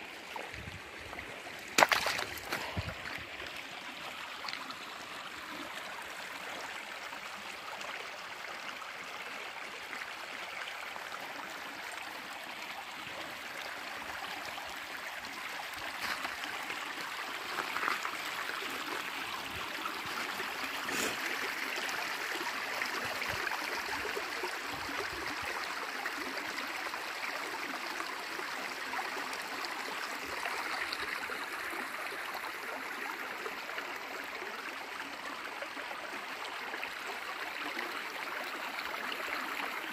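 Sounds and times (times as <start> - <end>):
stream rushing and gurgling: 0.0 - 7.6, 11.2 - 27.9.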